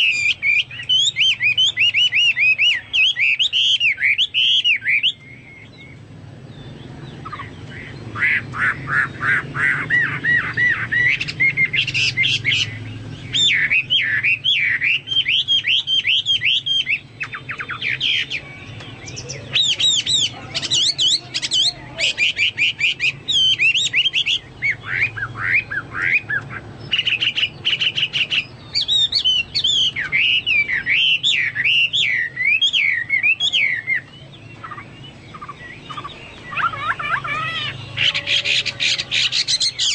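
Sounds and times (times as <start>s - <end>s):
bird singing whistled song: 0.0s - 39.9s.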